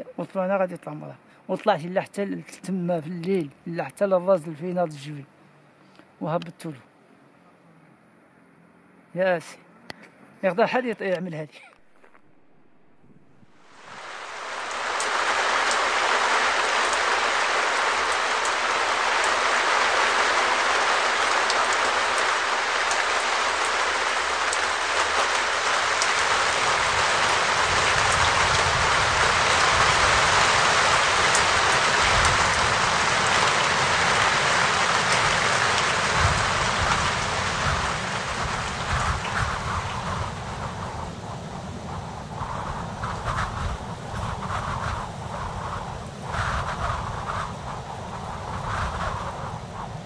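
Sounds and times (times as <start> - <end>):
steady rain falling: 11.8 - 50.0
wind rumble on microphone: 12.8 - 50.0.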